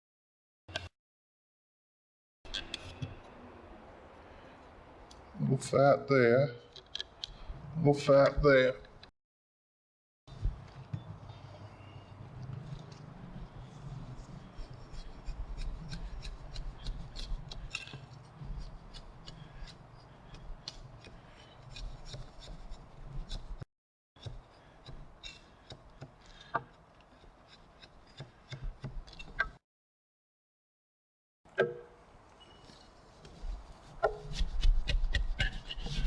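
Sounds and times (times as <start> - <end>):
chisel scraping wood: 12.4 - 23.6, 24.2 - 29.5, 32.8 - 36.0.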